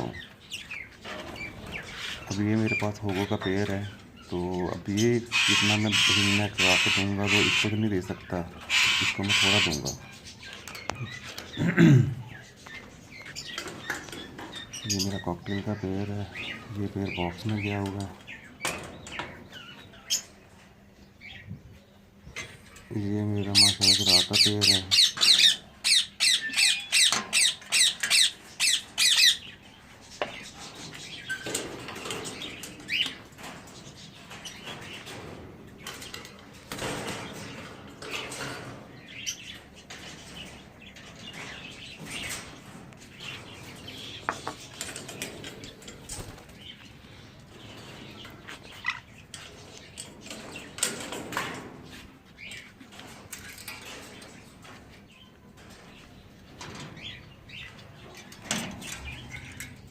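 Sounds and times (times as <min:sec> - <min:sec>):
parrot chirps and calls: 0:03.9 - 0:07.8, 0:08.6 - 0:11.6, 0:23.6 - 0:33.2
parrot squawking: 0:05.2 - 0:07.8, 0:08.6 - 0:10.0.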